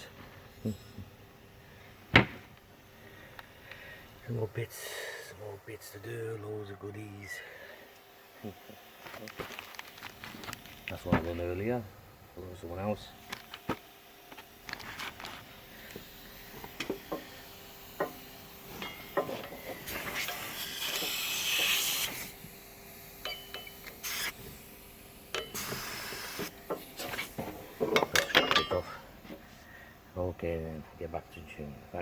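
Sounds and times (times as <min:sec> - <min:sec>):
hissing rustling noise: 0:13.1 - 0:22.6, 0:25.6 - 0:28.0.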